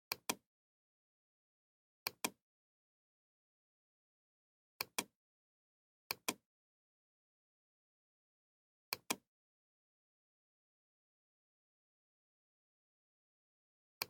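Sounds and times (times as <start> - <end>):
computer mouse clicking: 0.1 - 0.4, 2.1 - 2.4, 4.8 - 5.1, 6.1 - 6.4.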